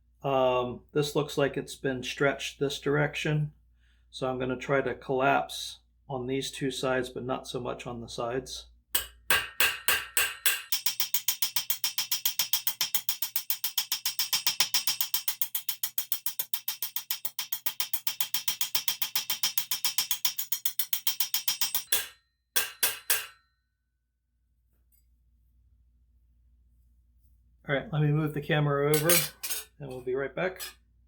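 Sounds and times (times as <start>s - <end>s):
hammer striking metal: 8.9s - 23.5s, 28.9s - 29.7s.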